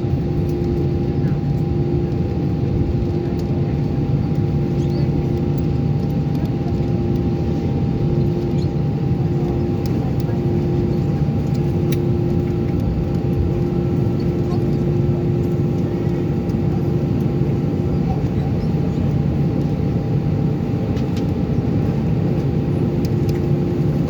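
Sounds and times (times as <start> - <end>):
aircraft cabin rumble: 0.0 - 24.0.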